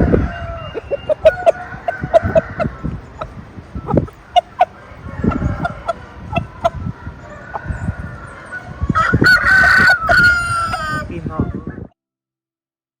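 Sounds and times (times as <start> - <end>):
rooster crowing: 0.0 - 3.4, 4.4 - 11.1
roosters clucking: 0.0 - 11.9.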